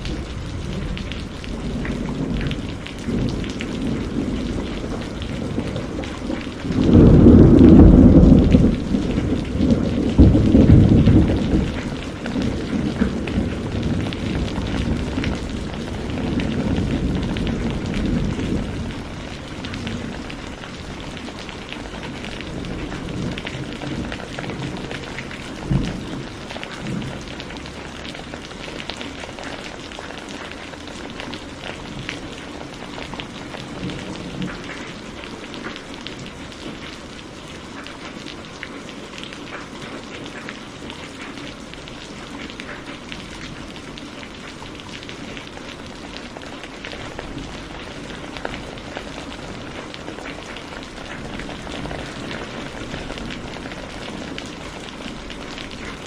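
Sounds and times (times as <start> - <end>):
low thunder rumble: 0.0 - 28.4
rain drops pattering: 0.0 - 56.0
distant thunder thump: 6.7 - 13.3.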